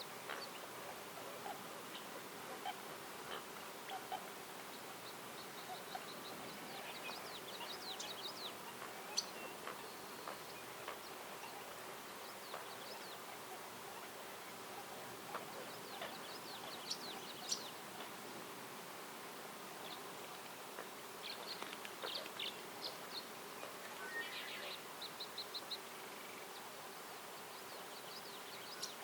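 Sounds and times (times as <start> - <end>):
outdoor background hiss: 0.0 - 29.0
songbird chirping: 0.0 - 29.0.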